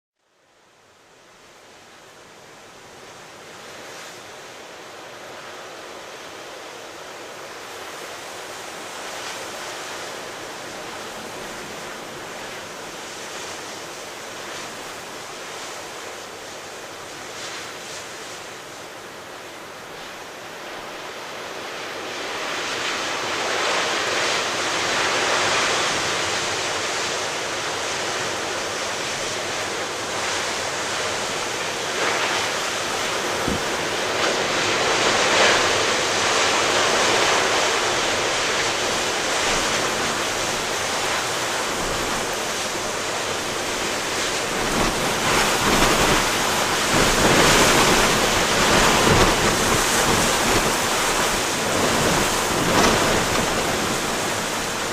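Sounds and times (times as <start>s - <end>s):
ocean surf breaking: 3.0s - 54.9s
wind buffeting microphone: 31.0s - 54.9s.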